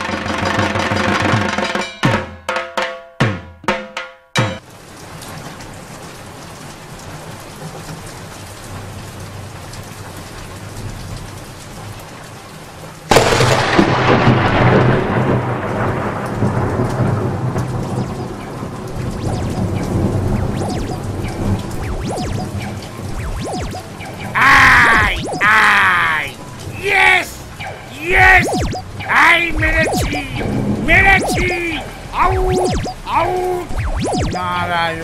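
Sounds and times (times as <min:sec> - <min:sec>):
steady rain: 0:04.6 - 0:35.0
thunderclap rumbling: 0:13.1 - 0:24.4.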